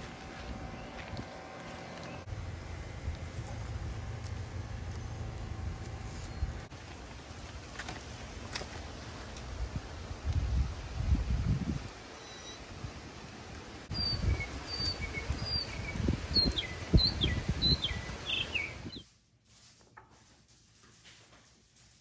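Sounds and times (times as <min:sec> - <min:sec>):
rustle of plant stems: 0:03.0 - 0:12.0, 0:18.0 - 0:22.0
bird chirping: 0:13.9 - 0:19.1.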